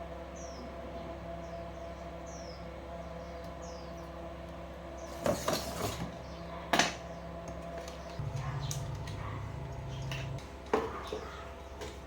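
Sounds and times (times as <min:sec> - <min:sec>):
low electrical hum: 0:00.0 - 0:12.0
loud buzzing hum: 0:06.0 - 0:10.8.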